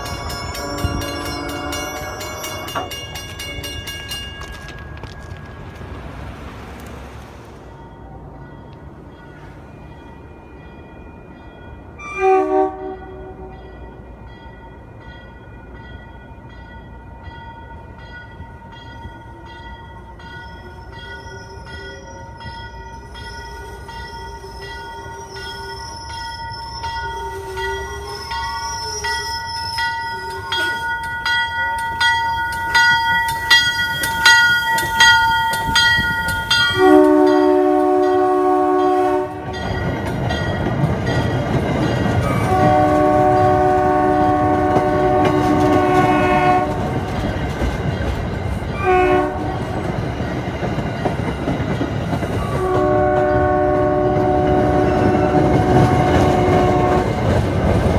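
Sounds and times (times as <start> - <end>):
train horn blast: 0.0 - 2.9, 12.0 - 13.7, 36.7 - 39.6, 42.2 - 47.0, 48.8 - 49.7, 52.4 - 57.4
train rumble with clicking: 0.0 - 57.9
high ringing tone: 16.3 - 39.8.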